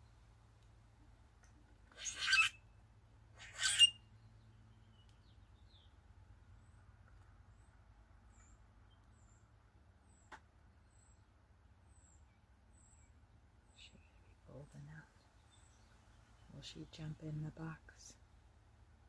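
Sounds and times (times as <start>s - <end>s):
harsh squeaky bird calls: 1.9s - 2.6s, 3.4s - 4.1s.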